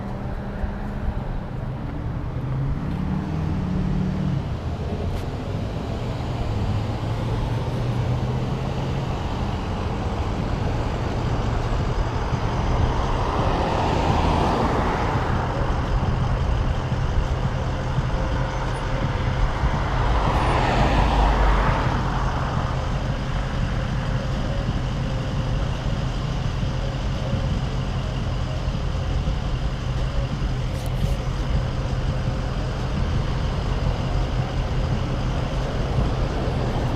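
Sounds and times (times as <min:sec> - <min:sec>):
bicycle rolling rumble: 0:00.0 - 0:36.9.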